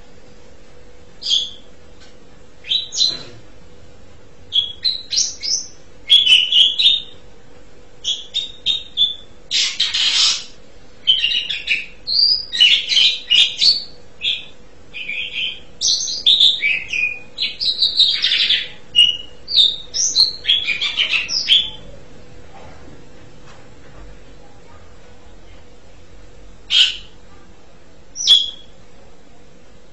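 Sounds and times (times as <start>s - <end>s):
starling chattering song: 8.0s - 22.0s, 26.7s - 27.5s.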